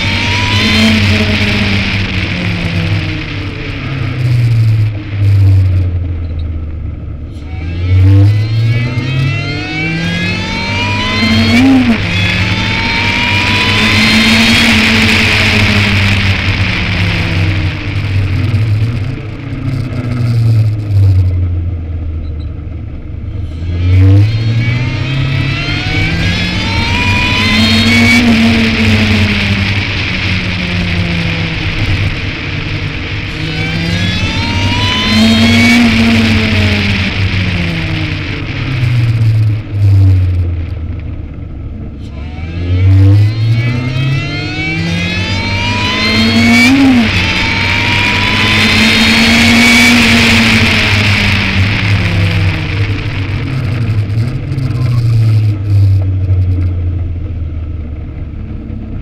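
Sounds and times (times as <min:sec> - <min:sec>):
car engine revving through gears: 0:00.0 - 0:59.0.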